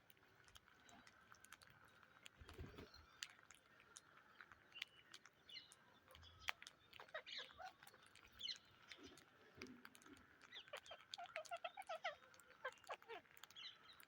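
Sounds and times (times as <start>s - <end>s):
parrots chirping: 10.5s - 13.8s.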